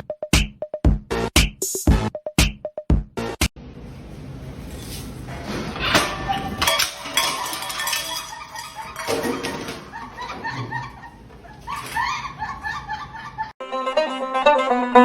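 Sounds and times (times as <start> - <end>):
hard objects clinking: 6.6 - 10.1.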